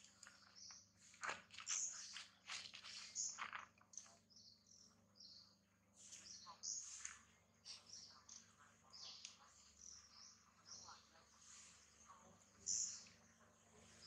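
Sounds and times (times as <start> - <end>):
light clicks and rustles: 0.0 - 4.3
faint bird chirps: 0.0 - 14.0.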